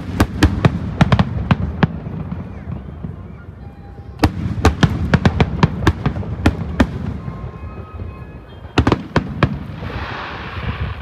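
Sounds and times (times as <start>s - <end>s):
fireworks bangs: 0.0s - 11.0s
fireworks hiss: 8.8s - 11.0s.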